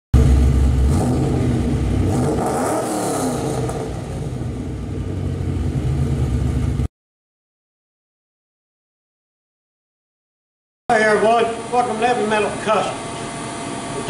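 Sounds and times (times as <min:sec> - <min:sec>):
car engine and exhaust running: 0:00.1 - 0:06.9.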